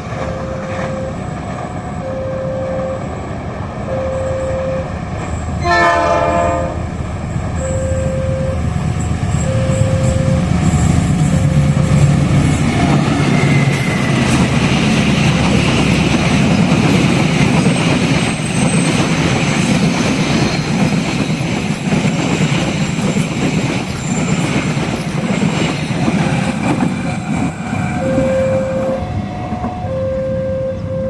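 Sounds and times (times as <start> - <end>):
two-tone warning alarm: 0.0 - 3.2, 3.8 - 5.0, 7.6 - 14.4, 27.7 - 31.0
train wheels rumbling on rails: 0.0 - 30.9.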